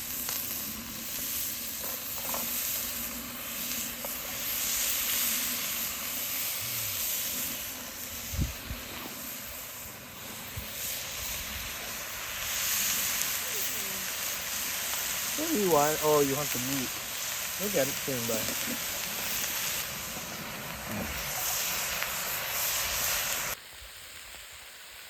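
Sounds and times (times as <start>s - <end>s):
beef sizzling in hot oil: 0.0s - 25.0s.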